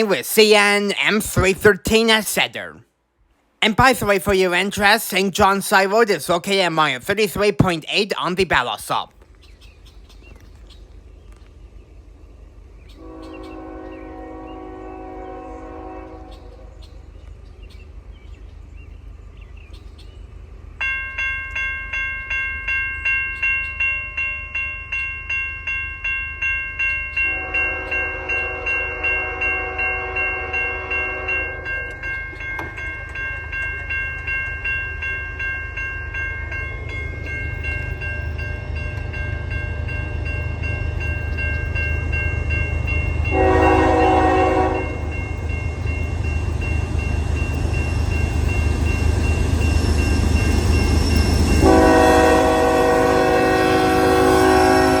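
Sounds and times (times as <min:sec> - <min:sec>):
level crossing bells ringing: 0:00.0 - 0:02.8, 0:03.6 - 0:09.1, 0:20.8 - 0:54.9
train rumble: 0:00.0 - 0:55.0
locomotive air horn blasts: 0:13.0 - 0:16.7, 0:27.3 - 0:31.9, 0:43.3 - 0:45.1, 0:51.6 - 0:55.0.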